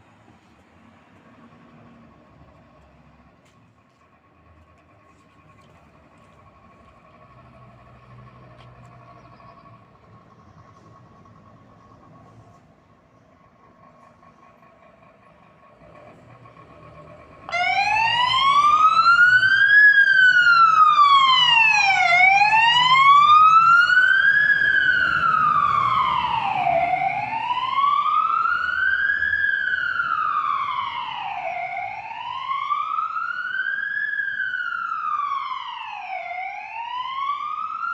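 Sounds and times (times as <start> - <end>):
truck engine running: 0.1 - 33.0
fire engine siren wailing: 13.7 - 37.9.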